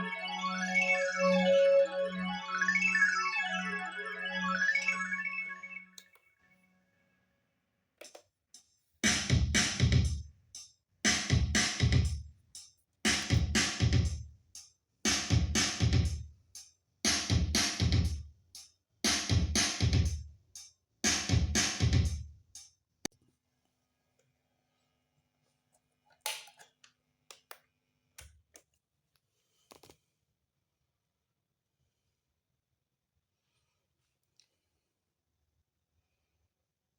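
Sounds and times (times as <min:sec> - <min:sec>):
drum machine rhythm: 0:08.0 - 0:22.7.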